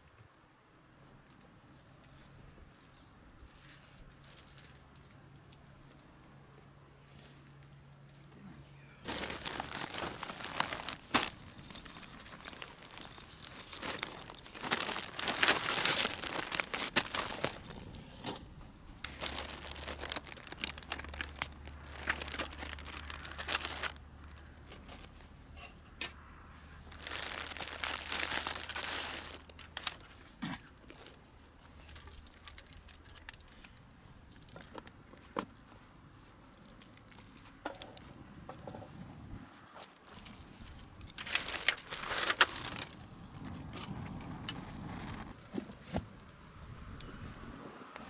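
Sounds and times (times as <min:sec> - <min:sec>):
material crinkling and rustling: 0:09.0 - 0:39.0, 0:39.8 - 0:46.9.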